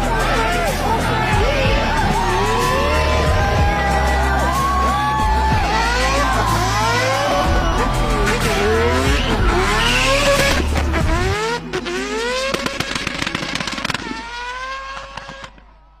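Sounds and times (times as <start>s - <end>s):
background music: 0.0s - 14.7s
car engine accelerating: 0.0s - 15.8s.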